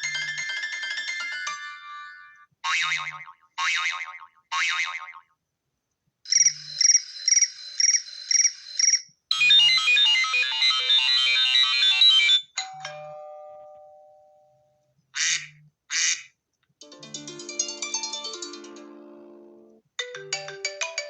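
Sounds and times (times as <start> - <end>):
bright repeating ringtone: 0.0 - 2.4, 6.3 - 13.1, 20.0 - 21.0.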